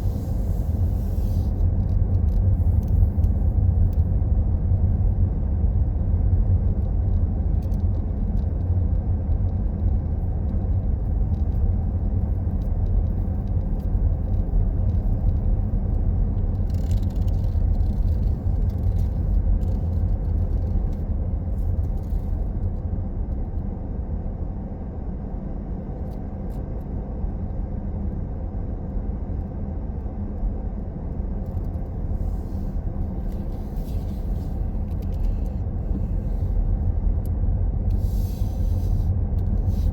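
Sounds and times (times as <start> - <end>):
car engine and tyre rumble: 0.0 - 39.9
faint clicks and rattles: 6.6 - 22.8.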